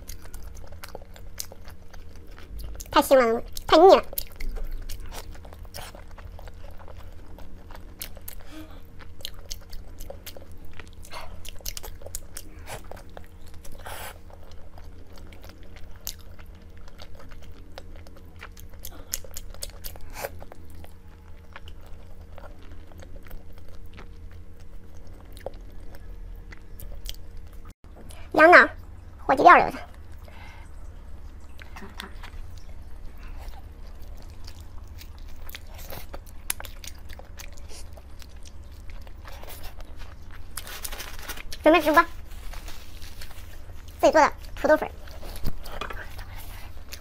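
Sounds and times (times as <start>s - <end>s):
food crunching: 0.0s - 28.2s, 29.8s - 47.0s
chewing food: 0.0s - 47.0s
low hum: 0.0s - 47.0s.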